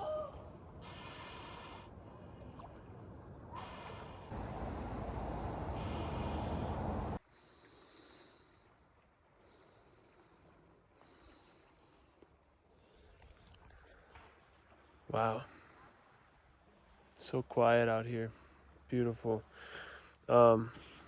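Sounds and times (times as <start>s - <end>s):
rushing water: 0.0s - 7.2s
swimmer breathing hard: 0.8s - 2.7s, 3.5s - 4.4s, 5.5s - 8.6s.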